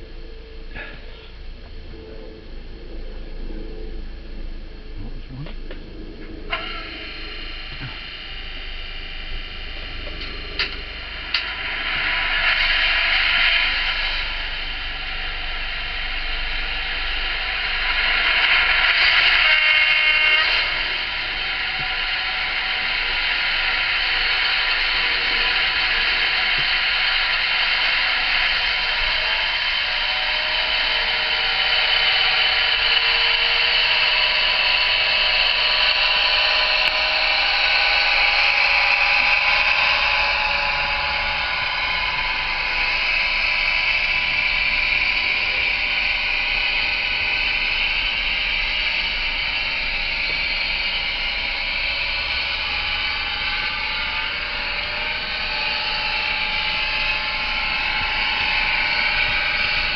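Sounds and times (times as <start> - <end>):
model locomotive diesel drone: 0.0 - 59.9
horn-like tone: 19.1 - 22.4.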